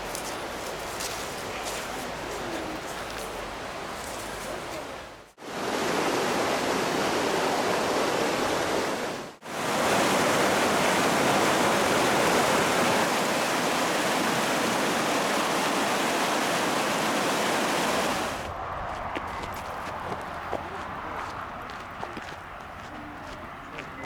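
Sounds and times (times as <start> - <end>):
river water rushing: 0.0 - 18.5.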